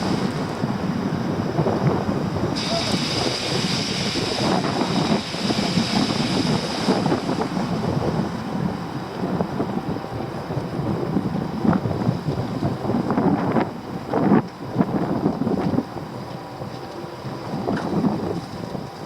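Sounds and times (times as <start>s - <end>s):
wind buffeting microphone: 0.0s - 19.0s
steady high hiss: 2.5s - 9.0s.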